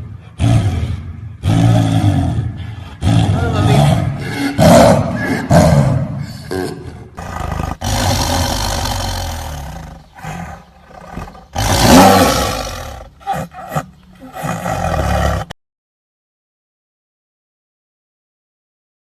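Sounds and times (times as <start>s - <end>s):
big cat roaring: 0.0s - 6.4s, 7.2s - 15.5s.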